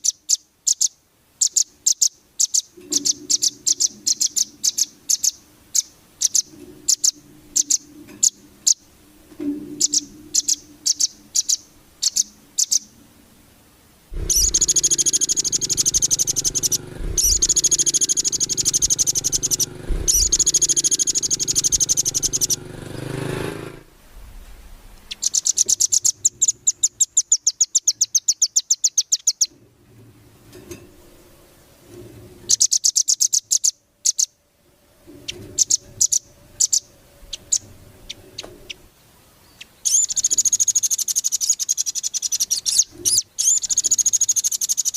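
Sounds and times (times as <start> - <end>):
fast bird trill: 0.0 - 8.8, 9.8 - 12.9, 14.2 - 23.5, 25.1 - 29.5, 35.6 - 38.8, 39.8 - 44.9
songbird chirps: 0.0 - 23.8, 24.9 - 29.6, 30.5 - 44.9
continuous high birdsong: 0.0 - 23.9, 24.9 - 44.9.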